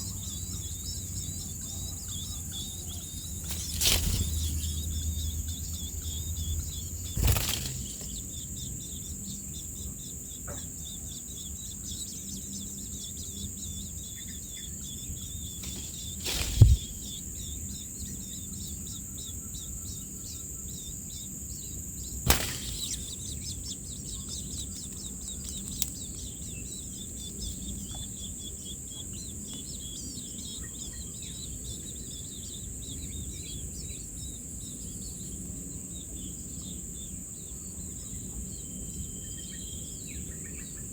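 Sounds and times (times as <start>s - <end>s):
insect chorus: 0.0s - 40.9s
sudden flutter-like sounds: 7.1s - 8.2s
low thump: 16.3s - 17.0s.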